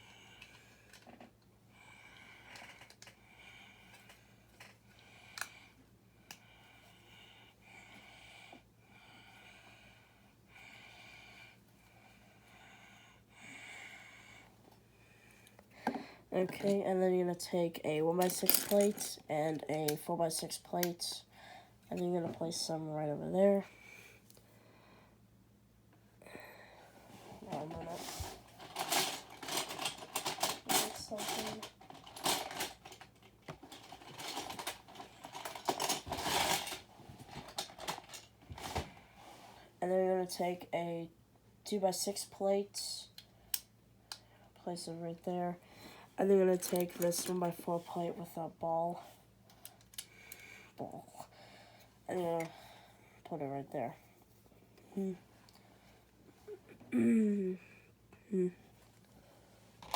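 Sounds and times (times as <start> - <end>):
plastic bricks clicking and clattering: 18.2 - 19.1, 28.6 - 36.8
plastic bricks rustling: 18.2 - 19.2, 27.6 - 38.8.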